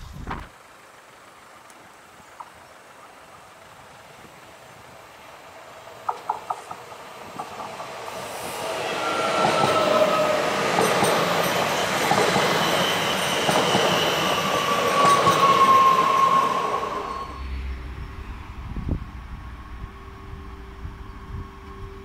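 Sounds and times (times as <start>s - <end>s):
train passing at speed: 3.2s - 22.0s
high whine dropping in pitch: 17.1s - 22.0s.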